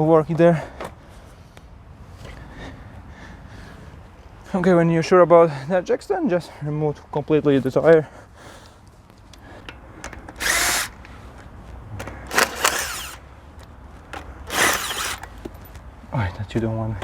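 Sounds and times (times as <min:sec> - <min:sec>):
power tool spinning out bolts: 0:09.7 - 0:11.1, 0:12.0 - 0:13.3, 0:14.2 - 0:15.5.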